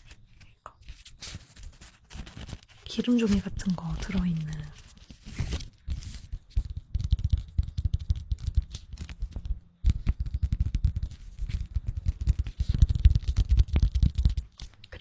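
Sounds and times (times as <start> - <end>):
paper sheets crackling: 0.0 - 15.0.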